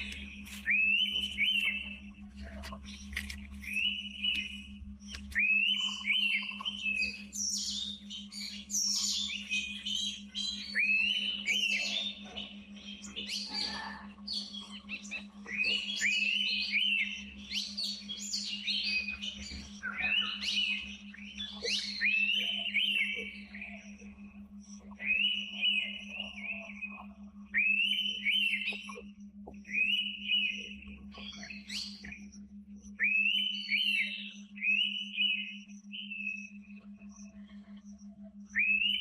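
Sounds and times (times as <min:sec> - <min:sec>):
high bird chirps: 0:00.0 - 0:02.1, 0:02.8 - 0:24.2
birds whistling: 0:00.0 - 0:39.0
steady low hum: 0:00.0 - 0:39.0.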